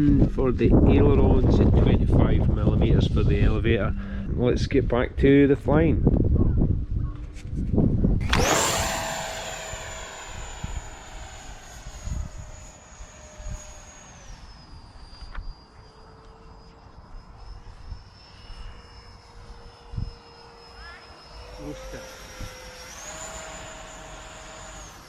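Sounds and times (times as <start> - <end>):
electric ducted fan whine: 0.0 - 25.0.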